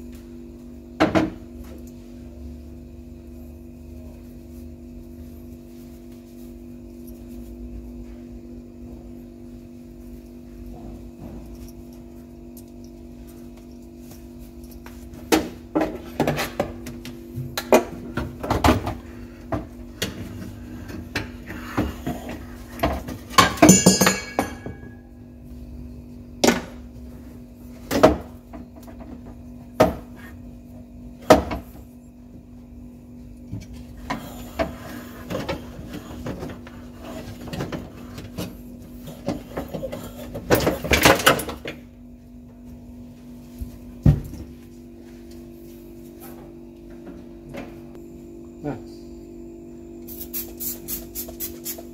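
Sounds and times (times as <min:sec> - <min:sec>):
steady low hum: 0:00.0 - 0:51.9
metal parts knocking and clinking: 0:23.4 - 0:24.9
ringing metal clink: 0:23.6 - 0:25.0.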